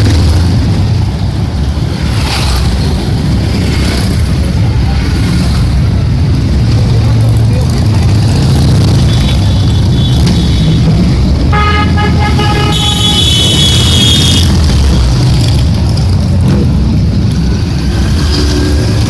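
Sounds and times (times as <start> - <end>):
motorcycle engines rumbling: 0.0 - 19.0
horn honking: 9.1 - 14.7.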